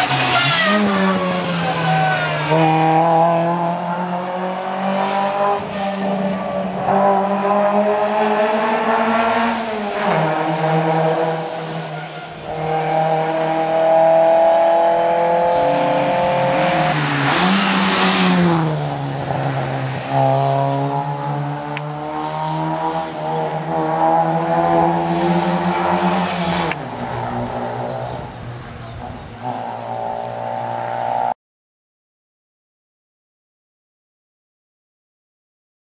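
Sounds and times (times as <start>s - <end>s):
rally car engine revving: 0.0s - 31.3s
tyre and road noise: 0.0s - 31.4s.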